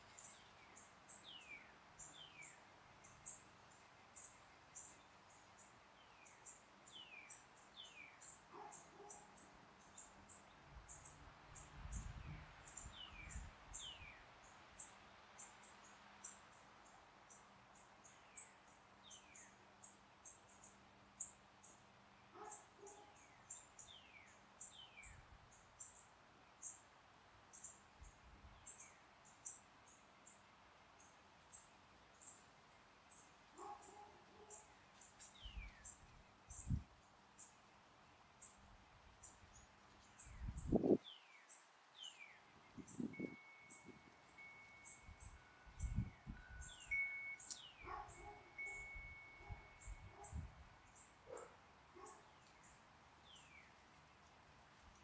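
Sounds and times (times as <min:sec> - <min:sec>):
wind rumble on microphone: 0:11.6 - 0:13.8, 0:36.5 - 0:36.9, 0:40.2 - 0:41.0, 0:42.7 - 0:44.1, 0:45.1 - 0:46.7.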